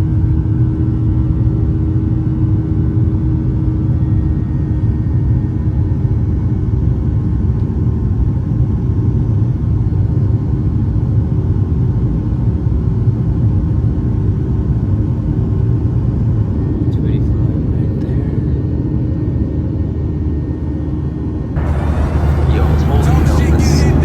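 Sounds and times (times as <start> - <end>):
airplane cabin rumble: 21.6 - 24.0.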